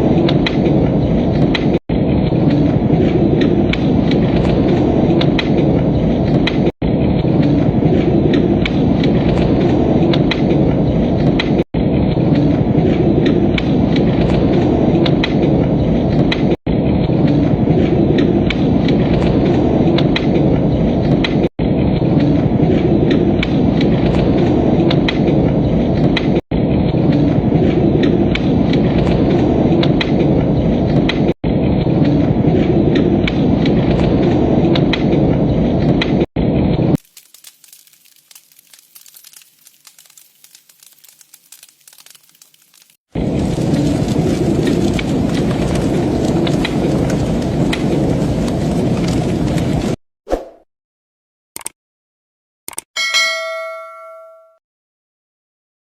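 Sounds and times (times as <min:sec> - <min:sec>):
wood fire crackling: 0:36.6 - 0:50.0
steady low rumble: 0:43.2 - 0:50.0.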